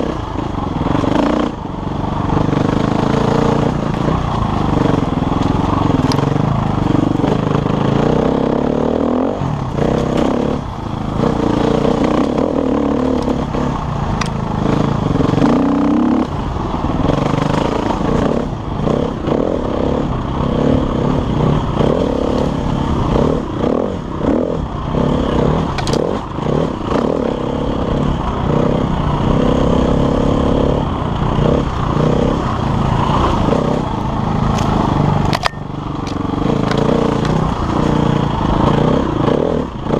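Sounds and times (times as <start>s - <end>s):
dirt bike engine revving: 0.0s - 39.9s
sharp clicks and clatter: 25.7s - 26.2s, 34.5s - 38.8s.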